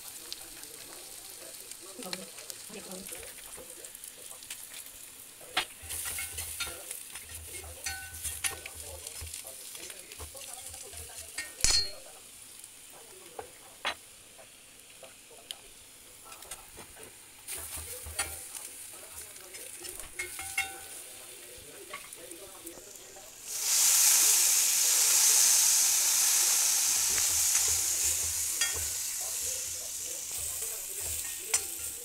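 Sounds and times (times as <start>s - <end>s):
food sizzling in oil: 0.0s - 32.0s
spatula scraping a pan: 5.6s - 11.6s, 16.8s - 22.2s, 27.1s - 32.0s.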